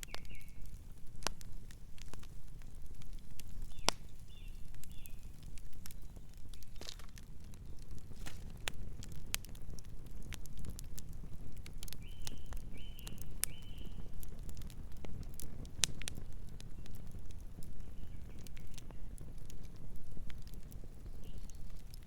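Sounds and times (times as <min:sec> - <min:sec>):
campfire crackling: 0:00.0 - 0:22.0
bird chirping: 0:03.6 - 0:05.3.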